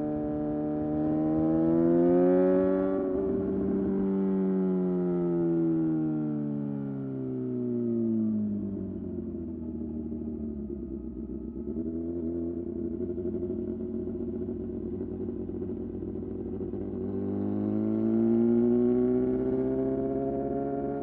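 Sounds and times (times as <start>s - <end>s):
motorcycle engine revving: 0.0s - 5.5s, 10.6s - 21.0s.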